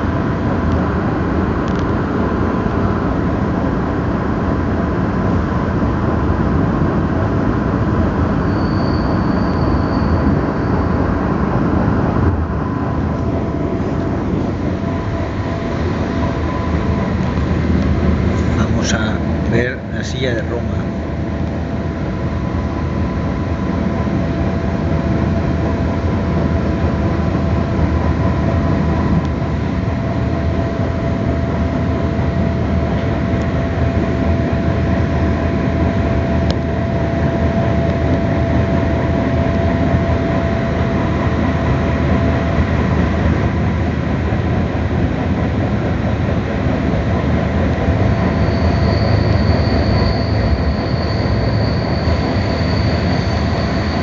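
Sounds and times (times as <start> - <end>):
faint steady whine: 0.0 - 54.0
train wheels rumbling on rails: 0.0 - 54.0
high-pitched squeal: 8.3 - 11.4, 48.1 - 54.0.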